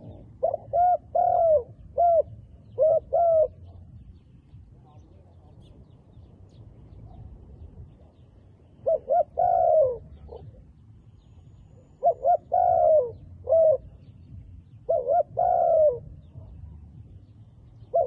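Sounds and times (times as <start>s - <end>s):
dove cooing: 0.0s - 4.0s, 8.8s - 10.8s, 11.8s - 14.2s, 14.8s - 16.6s.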